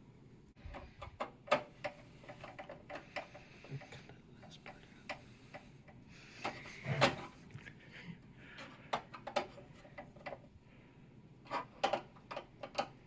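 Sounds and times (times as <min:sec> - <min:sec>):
hands clicking parts into pc case: 0:08.6 - 0:10.5, 0:11.5 - 0:13.0.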